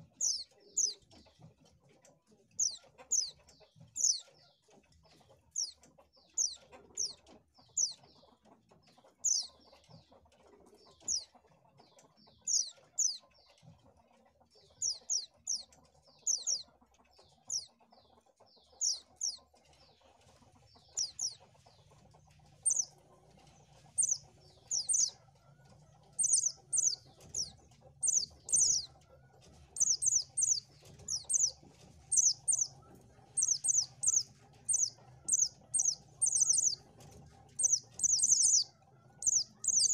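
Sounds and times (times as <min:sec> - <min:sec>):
bird calling high chirps: 0:16.3 - 0:16.6, 0:22.6 - 0:22.9, 0:24.0 - 0:25.1, 0:26.2 - 0:28.9, 0:29.8 - 0:36.8, 0:37.6 - 0:39.9.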